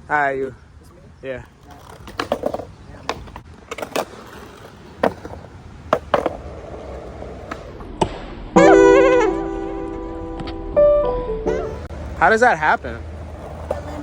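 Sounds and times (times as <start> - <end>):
skateboard rolling on concrete: 0.8 - 9.2, 11.6 - 14.0
skateboard clacks and knocks: 1.6 - 7.8, 13.0 - 14.0.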